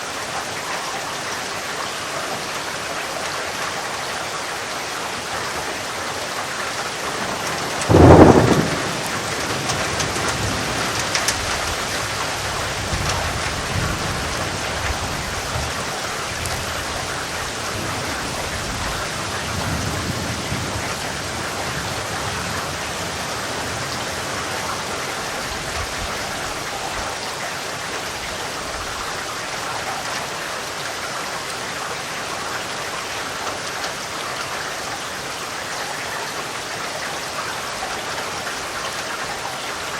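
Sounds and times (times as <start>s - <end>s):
heavy rain: 0.0s - 39.9s
thunderclap: 7.0s - 24.2s
rolling thunder: 7.0s - 26.8s.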